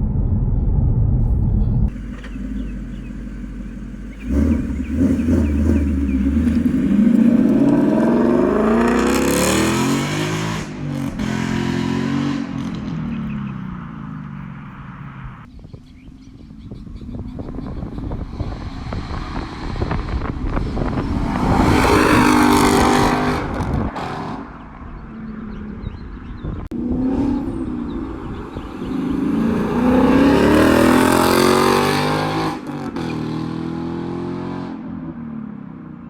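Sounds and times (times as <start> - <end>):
car engine accelerating hard: 1.9 - 15.4, 26.7 - 34.8.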